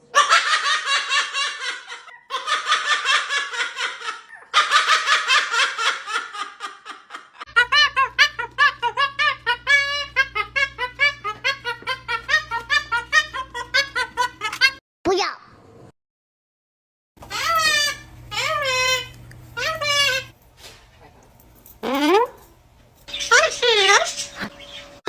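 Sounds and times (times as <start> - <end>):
cockatoo laughing: 0.0 - 14.8, 17.3 - 20.4.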